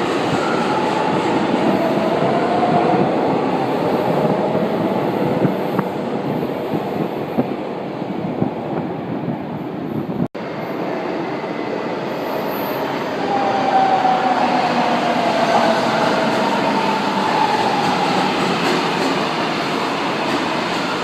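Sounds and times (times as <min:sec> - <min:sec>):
train whine: 0:09.6 - 0:21.0
train wheels rumbling on rail: 0:12.0 - 0:21.0.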